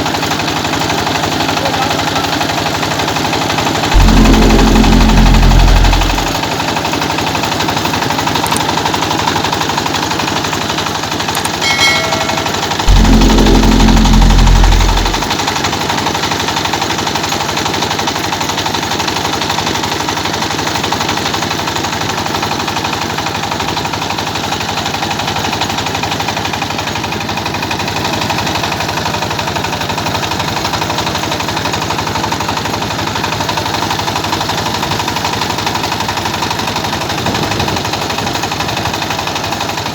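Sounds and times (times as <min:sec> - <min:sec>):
loud low hum: 0:03.9 - 0:06.4, 0:11.4 - 0:15.5.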